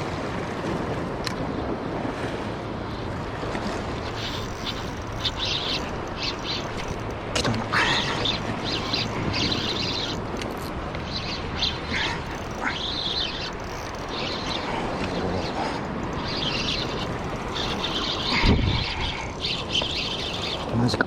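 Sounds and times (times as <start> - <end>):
steady rushing background: 4.0 - 20.6
short bird calls: 7.7 - 10.2, 11.1 - 20.6.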